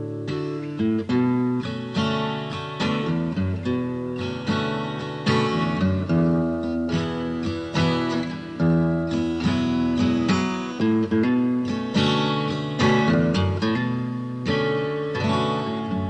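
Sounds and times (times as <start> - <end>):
acoustic guitar music: 0.0 - 16.0.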